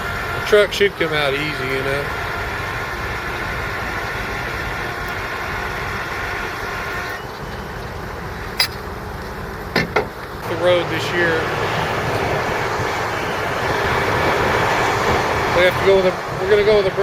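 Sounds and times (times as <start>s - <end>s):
truck engine running: 0.0s - 17.0s
steady winch whine: 1.3s - 8.8s
sharp click: 8.6s - 8.8s.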